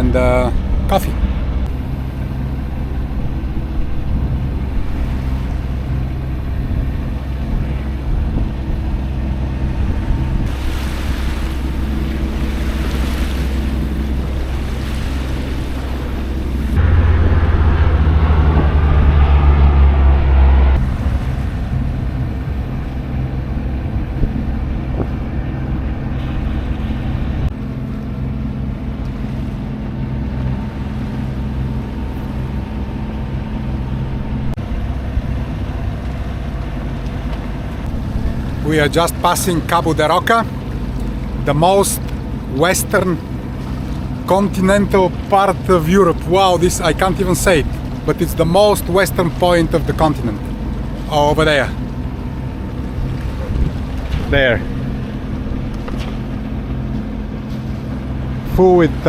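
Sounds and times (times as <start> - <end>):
wind on microphone: 0.0 - 27.6, 50.2 - 58.4
boat engine running: 0.0 - 59.0
water rushing past hull: 0.0 - 59.0.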